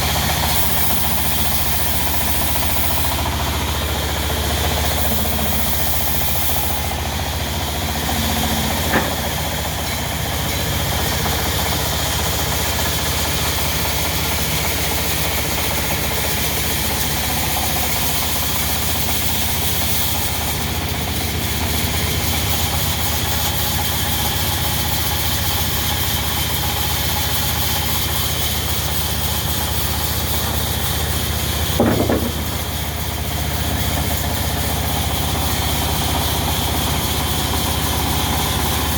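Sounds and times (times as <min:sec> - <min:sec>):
diesel engine running: 0:00.0 - 0:38.9
brief knocks: 0:31.8 - 0:32.6.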